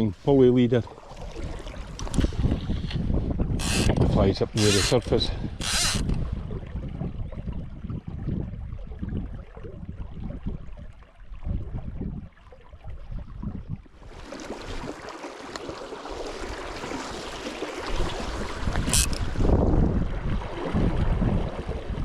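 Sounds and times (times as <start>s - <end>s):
river water flowing: 0.0s - 2.4s, 4.5s - 6.3s, 14.0s - 19.6s
wind buffeting microphone: 1.2s - 14.2s, 17.9s - 22.0s.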